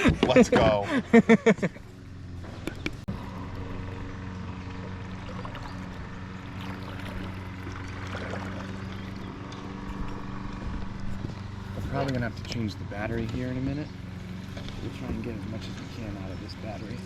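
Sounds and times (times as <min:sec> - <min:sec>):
low hum: 0:01.0 - 0:17.0
water lapping around kayak: 0:01.8 - 0:13.2.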